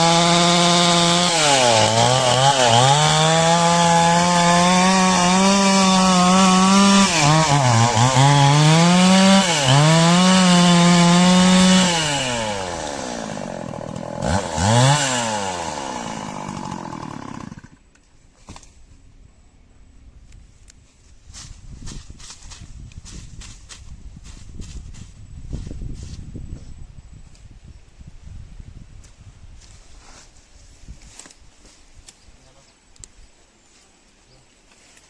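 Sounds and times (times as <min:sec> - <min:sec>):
chainsaw cutting a log: 0:00.0 - 0:17.8.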